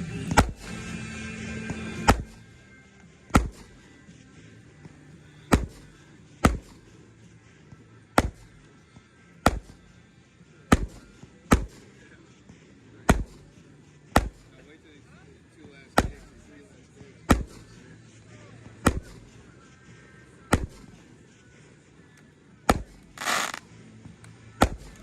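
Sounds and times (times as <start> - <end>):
firework bangs: 22.7 - 23.6.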